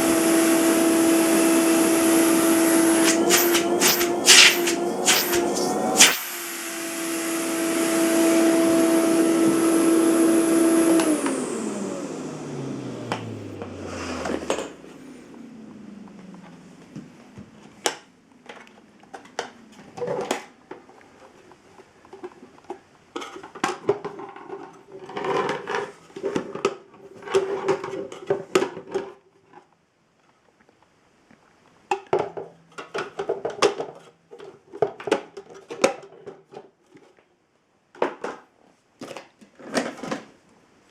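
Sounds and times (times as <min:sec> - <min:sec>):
vacuum cleaner motor winding down: 0:00.0 - 0:17.0.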